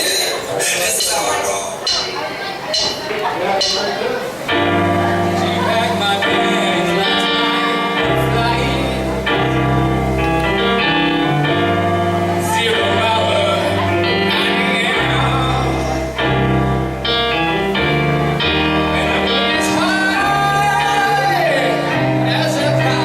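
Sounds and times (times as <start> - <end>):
held chords: 0.0 - 23.0
bass line: 4.5 - 23.0
man singing: 4.8 - 16.8, 18.4 - 23.0.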